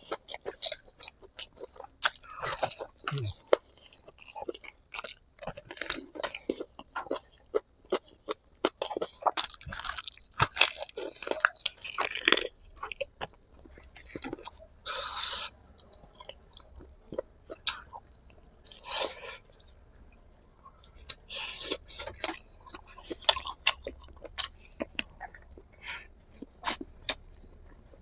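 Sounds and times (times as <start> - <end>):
wet chewing and smacking: 0.0 - 28.0
breathy noisy sounds: 3.1 - 3.4.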